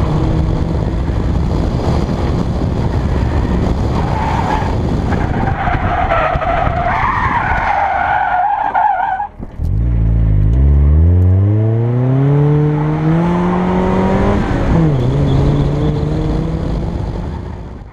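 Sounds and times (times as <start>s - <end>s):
sports car engine accelerating: 9.4s - 17.9s.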